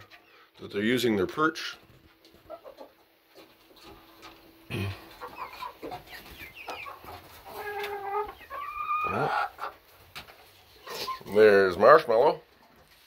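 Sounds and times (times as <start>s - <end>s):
chickens clucking and calling: 2.1s - 11.6s.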